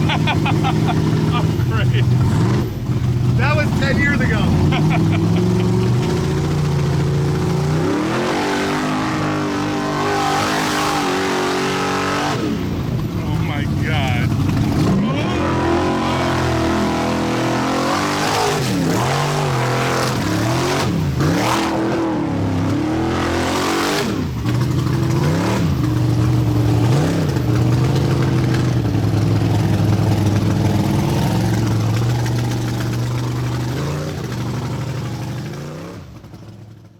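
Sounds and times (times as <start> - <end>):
vehicle engine revving: 0.0 - 36.8.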